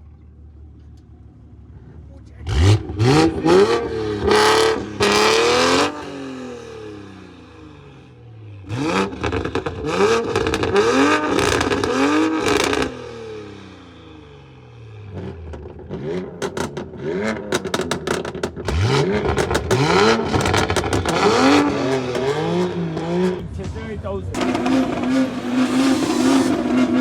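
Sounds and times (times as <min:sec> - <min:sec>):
car engine revving: 0:01.6 - 0:27.0
exhaust pops and crackles: 0:09.1 - 0:12.9, 0:15.2 - 0:25.4.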